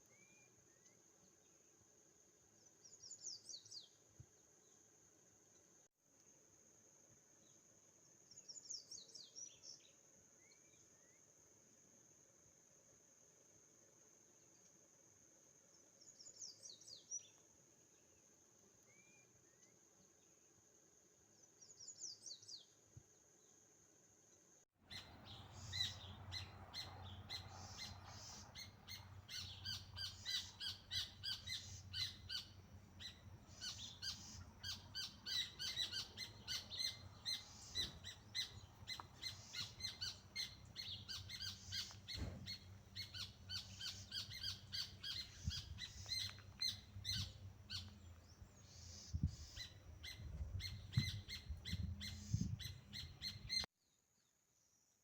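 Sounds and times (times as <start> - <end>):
birds chirping: 24.9 - 53.7.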